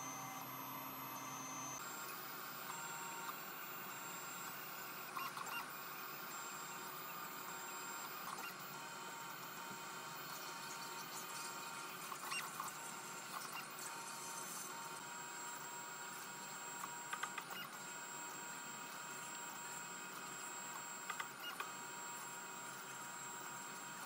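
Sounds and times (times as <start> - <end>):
stepper motors whining: 0.0 - 14.6.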